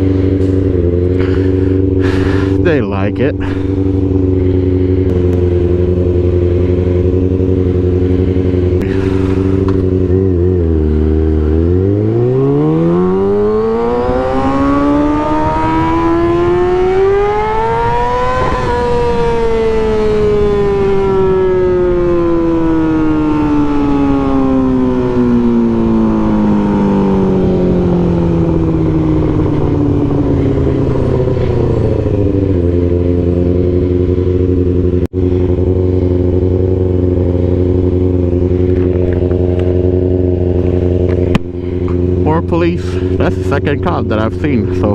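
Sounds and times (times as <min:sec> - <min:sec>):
motorcycle engine revving: 0:00.0 - 0:44.9
wind noise: 0:13.0 - 0:24.2.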